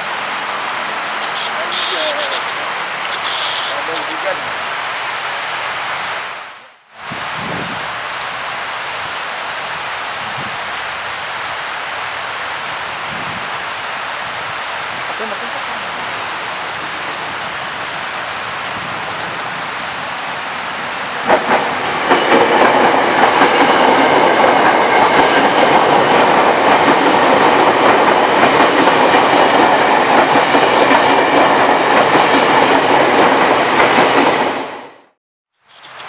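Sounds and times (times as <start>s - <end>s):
electric train passing: 0.0s - 6.4s, 16.0s - 35.1s
heavy rain hissing: 0.0s - 34.9s
train wheels clicking over rail joints: 21.2s - 34.3s.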